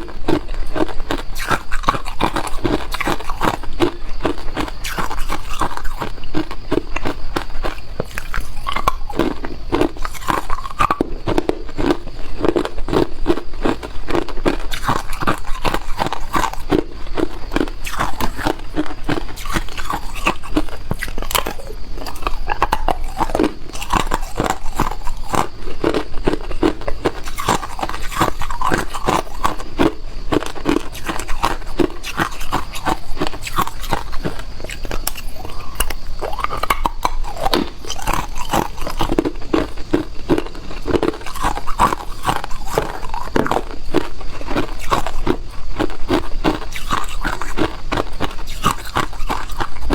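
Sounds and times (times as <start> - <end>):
person crunching ice: 0.0 - 6.1, 19.4 - 29.6, 30.3 - 49.7.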